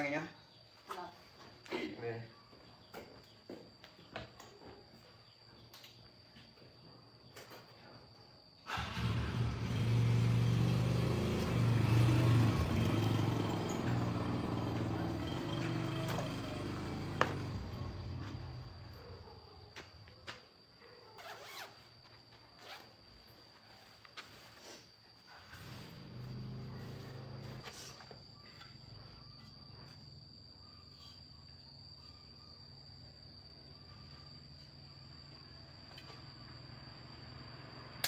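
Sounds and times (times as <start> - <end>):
motorbike engine starting and running: 8.7 - 19.0, 25.3 - 27.7.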